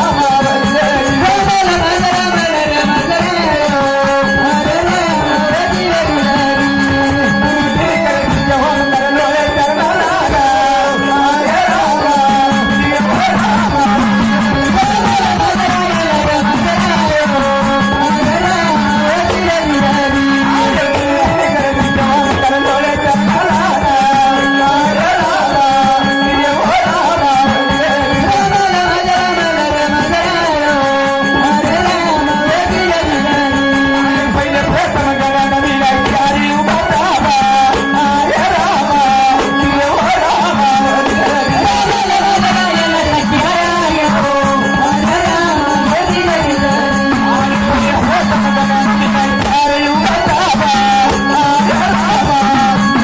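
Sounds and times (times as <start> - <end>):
hand drum beats: 0.0 - 53.0
held instrumental tones: 0.0 - 53.0
person singing devotional song: 0.0 - 53.0
sung folk melody: 0.0 - 53.0.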